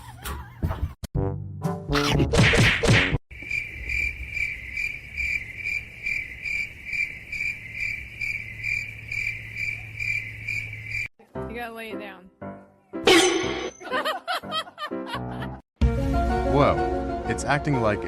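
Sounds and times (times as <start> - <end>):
cricket chirping: 3.3 - 11.1.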